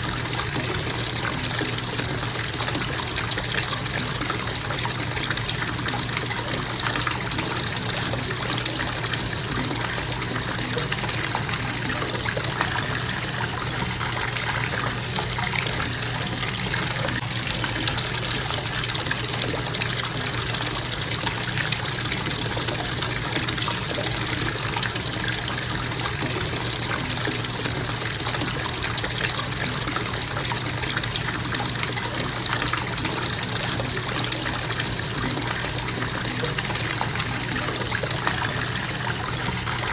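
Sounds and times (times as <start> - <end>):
bathtub faucet running: 0.0 - 39.9.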